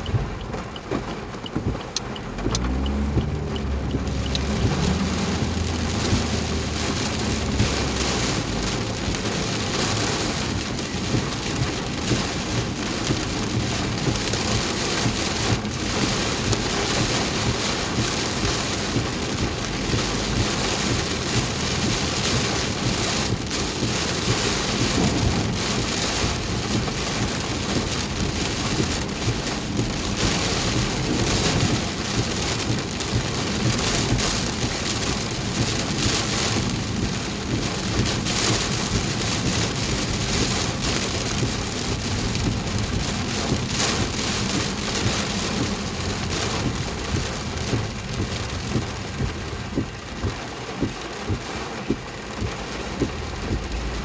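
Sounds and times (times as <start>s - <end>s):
heavy rain on car roof: 0.0s - 54.0s.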